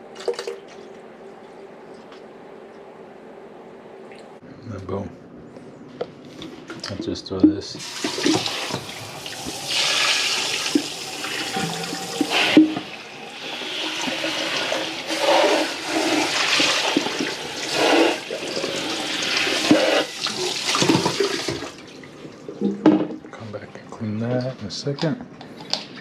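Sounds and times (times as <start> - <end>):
water splashing into a sink: 0.0 - 0.9, 7.8 - 23.2.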